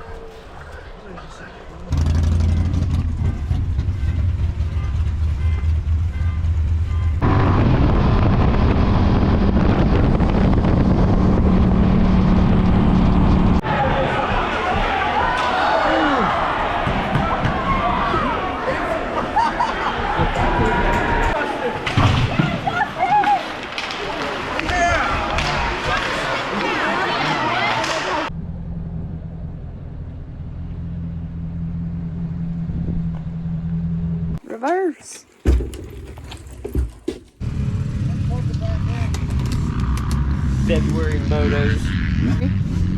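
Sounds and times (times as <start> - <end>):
engine running loud: 1.9 - 13.6, 37.4 - 42.9
wind buffeting microphone: 7.2 - 13.6.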